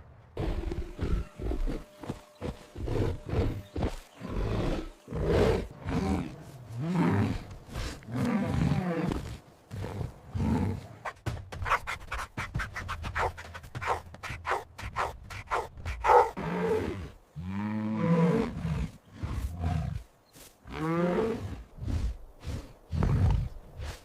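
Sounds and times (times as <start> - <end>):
big cat roaring and grunting: 2.8 - 11.0.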